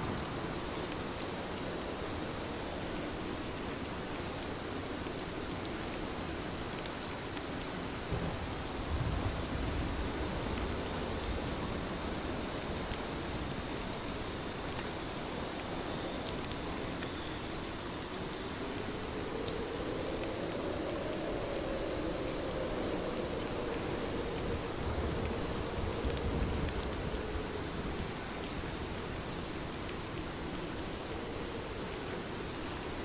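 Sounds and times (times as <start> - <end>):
heavy rain: 0.0 - 33.0
raindrop ticks: 6.6 - 32.7.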